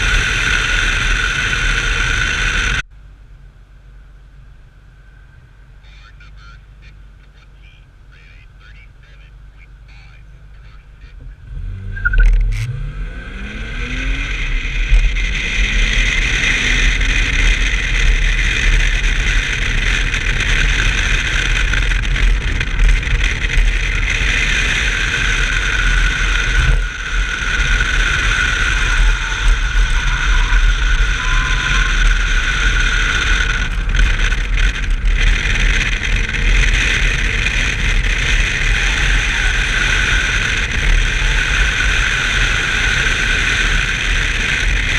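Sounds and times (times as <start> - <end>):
low rumble: 0.0 - 44.9
car engine revving hard: 11.4 - 44.9.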